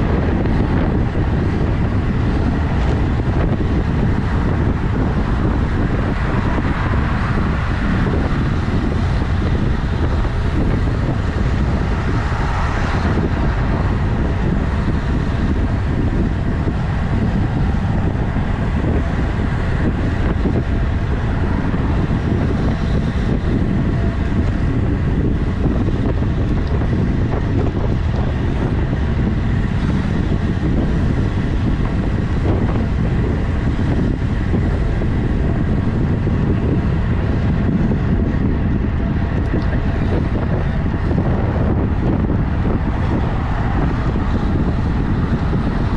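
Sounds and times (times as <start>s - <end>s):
wind noise on microphone: 0.0s - 45.9s.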